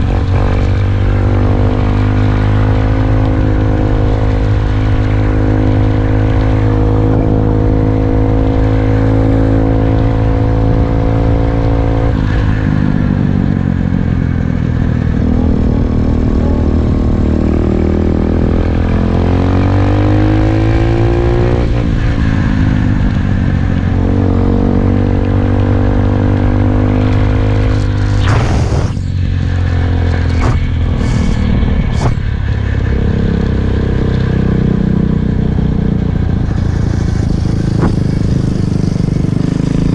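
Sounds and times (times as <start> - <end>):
dirt bike engine revving: 26.8 - 35.1.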